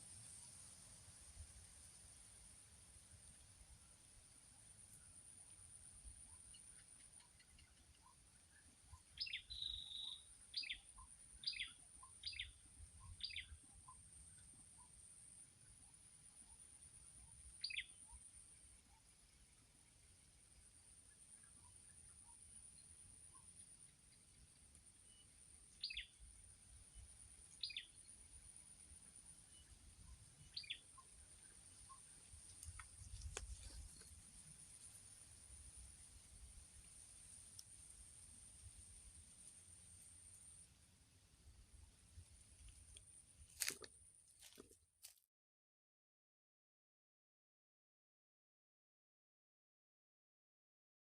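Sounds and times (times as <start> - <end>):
faint high whine: 0.0 - 43.6
small bird chirping: 4.9 - 15.0, 17.2 - 20.0, 20.6 - 40.7.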